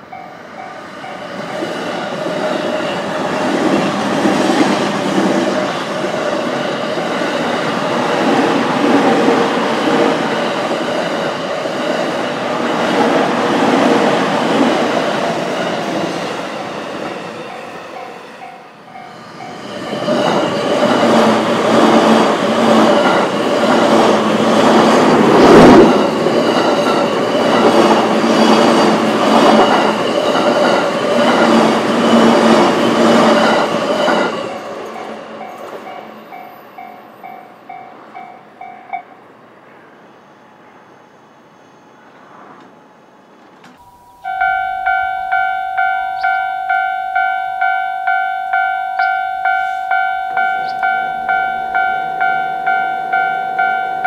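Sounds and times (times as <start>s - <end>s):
level crossing warning bell: 0.0s - 3.1s, 15.5s - 21.4s, 28.4s - 39.2s, 43.8s - 54.0s
train rumbling and clattering on rails: 0.0s - 41.0s, 41.9s - 54.0s.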